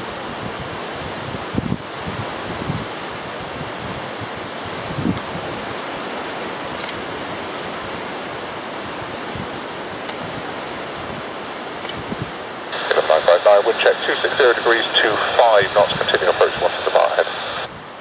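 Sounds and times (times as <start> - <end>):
gusty wind on microphone: 0.0 - 13.0.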